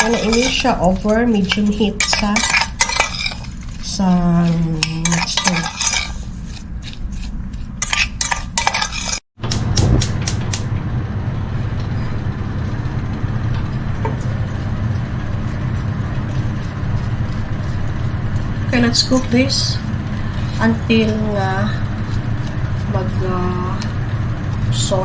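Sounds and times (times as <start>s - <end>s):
spoon clinking in a pot: 0.0s - 3.5s, 4.8s - 6.2s
steady low hum: 0.0s - 25.0s.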